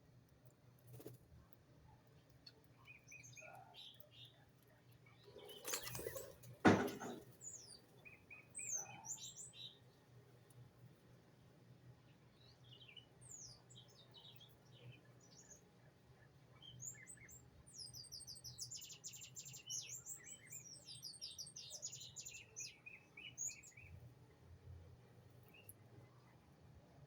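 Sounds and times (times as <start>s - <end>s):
small songbirds chirping: 1.9s - 10.6s, 12.0s - 24.3s.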